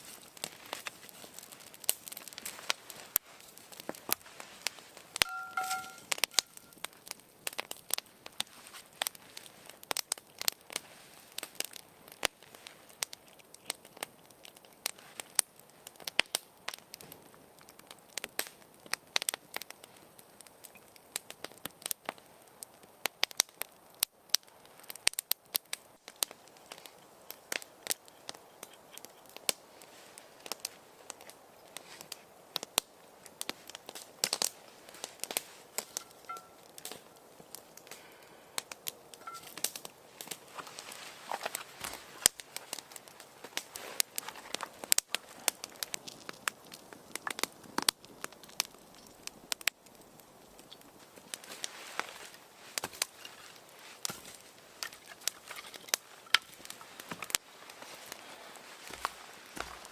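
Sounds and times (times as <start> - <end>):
wood fire crackling and popping: 0.0 - 59.9
short steady tone: 5.2 - 6.7.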